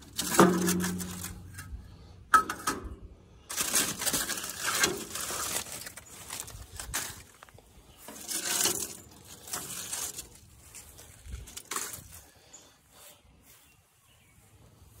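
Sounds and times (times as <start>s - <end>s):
metal grill parts clanking: 0.0s - 3.0s, 8.0s - 10.4s
metal rattling and scraping: 0.0s - 12.1s.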